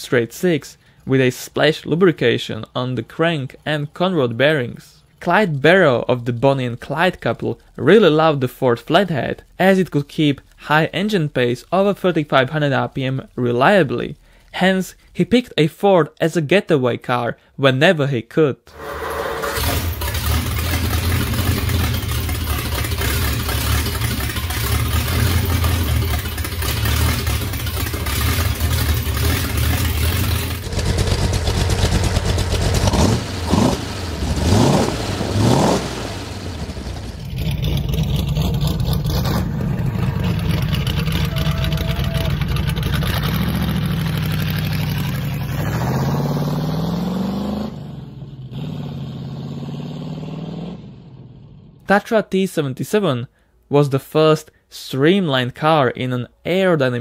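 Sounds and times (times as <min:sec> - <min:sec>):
car engine running and revving: 0:18.8 - 0:51.8.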